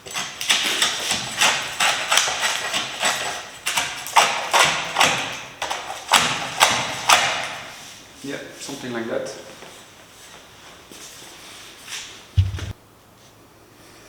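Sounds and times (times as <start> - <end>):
sharp knocks with ringing tail: 12.4 - 12.8.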